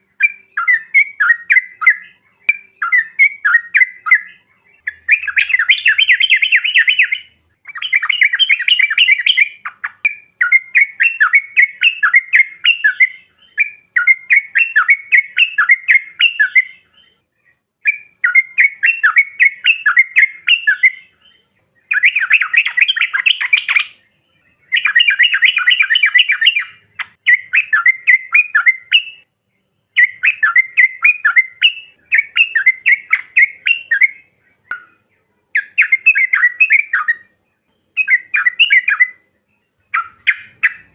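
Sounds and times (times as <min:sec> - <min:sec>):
bird bubbling chattering song: 0:00.0 - 0:17.2, 0:17.8 - 0:24.0, 0:24.6 - 0:29.3, 0:29.9 - 0:37.3, 0:37.9 - 0:39.2, 0:39.8 - 0:40.9.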